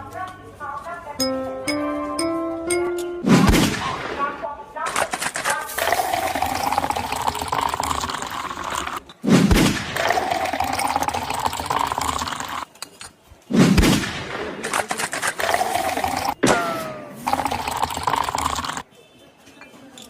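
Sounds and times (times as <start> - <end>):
soda water gushing: 5.2 - 9.0, 10.0 - 12.7, 15.0 - 16.4, 17.2 - 18.8.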